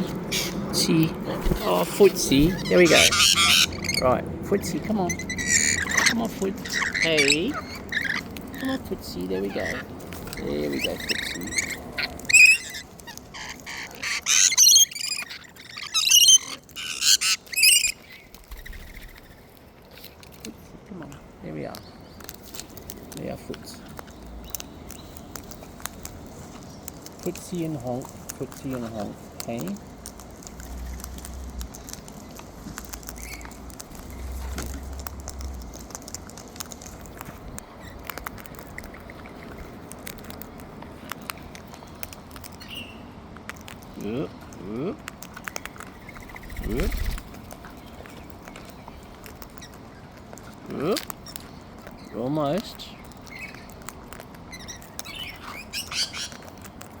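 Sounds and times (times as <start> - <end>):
faint bird chirp: 0.0 - 4.2, 4.8 - 20.3, 45.3 - 50.1
cockatoos squawking: 0.0 - 19.5, 45.4 - 56.6
beak clicks and taps: 4.6 - 57.0.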